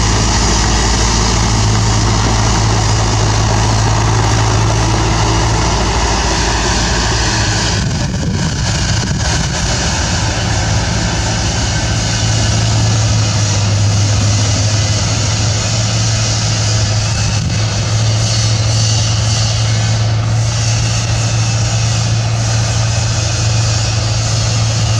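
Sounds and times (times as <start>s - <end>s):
bulldozer diesel engine running: 0.0s - 24.9s.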